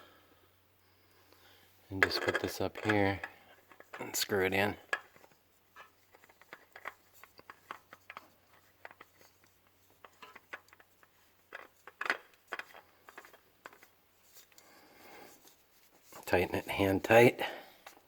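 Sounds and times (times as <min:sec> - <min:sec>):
oil filter clicks and scrapes: 0:02.0 - 0:16.4.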